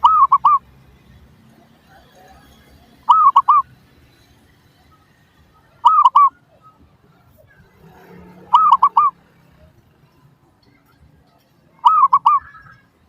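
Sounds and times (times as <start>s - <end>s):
dove cooing: 0.0s - 0.7s, 3.0s - 3.7s, 5.6s - 6.8s, 7.7s - 9.6s, 11.8s - 12.8s.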